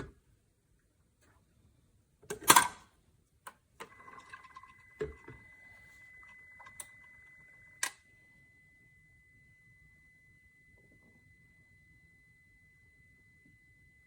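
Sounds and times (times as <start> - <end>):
faint high-pitched tone: 3.8 - 14.0.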